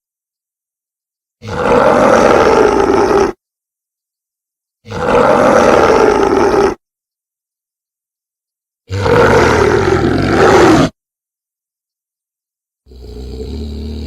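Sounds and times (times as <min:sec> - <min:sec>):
big cat roaring: 0:01.4 - 0:03.4, 0:04.8 - 0:06.8, 0:08.9 - 0:11.0, 0:12.9 - 0:14.0.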